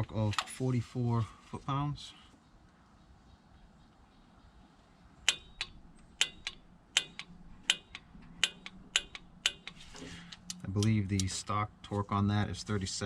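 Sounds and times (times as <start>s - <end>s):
wrench ratchet clicking: 5.3s - 11.3s.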